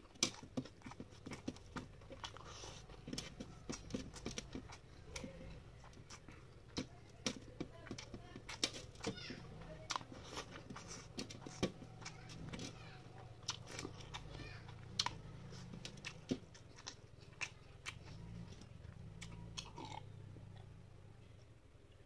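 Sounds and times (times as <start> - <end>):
chewing and lip smacks: 0.0 - 22.0.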